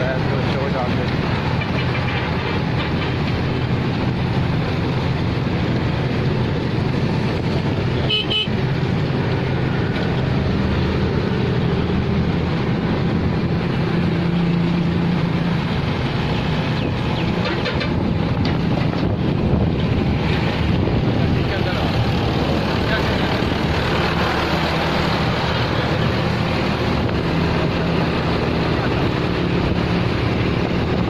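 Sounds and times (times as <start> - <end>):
tractor engine under heavy load: 0.0 - 31.0
horn toot: 8.0 - 8.6.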